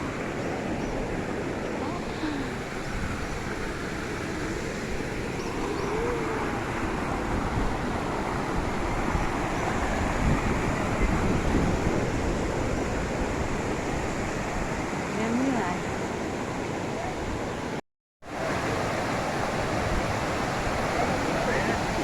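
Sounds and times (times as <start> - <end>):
waterfall rushing: 18.3 - 22.0.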